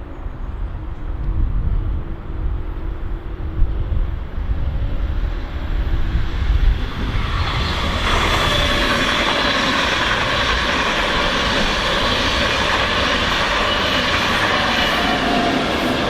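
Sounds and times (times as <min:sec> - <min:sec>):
train passing close by: 0:00.0 - 0:16.0.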